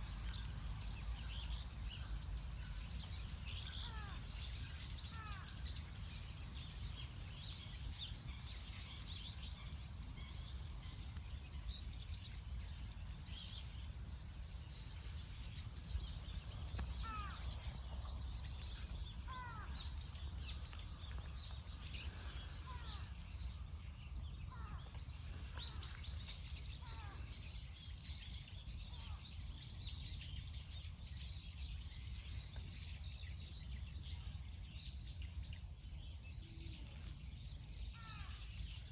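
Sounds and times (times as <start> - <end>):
birds chirping: 0.0 - 27.3.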